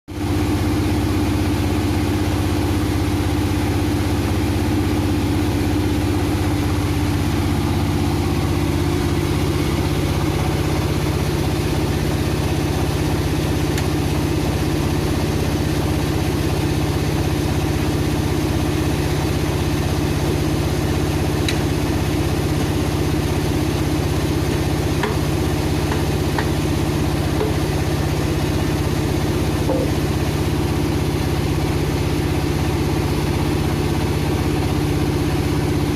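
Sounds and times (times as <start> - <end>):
power saw running: 20.6 - 31.5.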